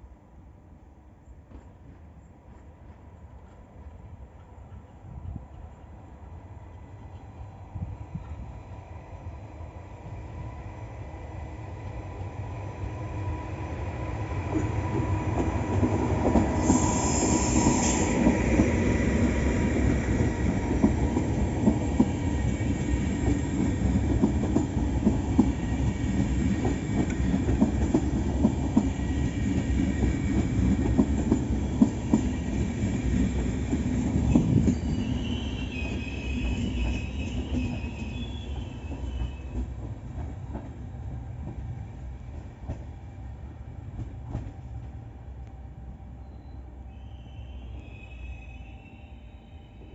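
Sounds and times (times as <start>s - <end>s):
train wheels clattering on rails: 14.5s - 43.1s, 43.9s - 45.0s
high hiss: 16.4s - 19.3s
high wheel squeal: 34.3s - 39.6s, 46.2s - 49.9s.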